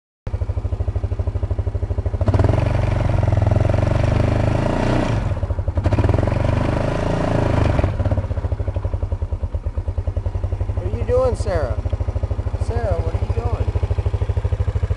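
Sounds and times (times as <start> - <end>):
atv engine idling and revving: 0.3 - 14.9.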